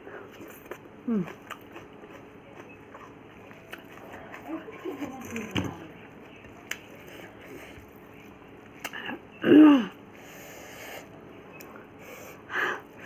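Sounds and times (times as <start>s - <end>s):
person eating with mouth clicks: 0.3s - 4.0s.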